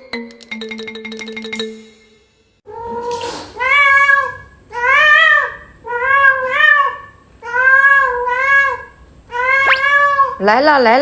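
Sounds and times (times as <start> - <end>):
cat meowing: 2.7 - 10.4.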